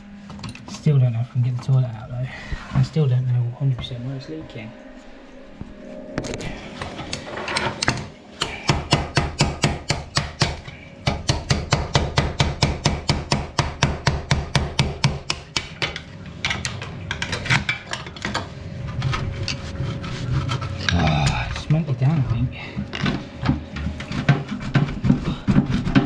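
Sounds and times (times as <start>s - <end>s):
rapid hammering: 7.8s - 16.0s.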